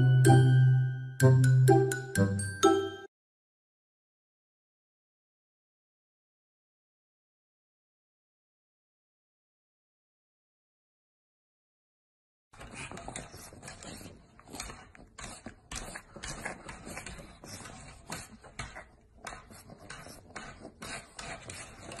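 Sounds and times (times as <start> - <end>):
dog snuffling and huffing: 12.6 - 22.0.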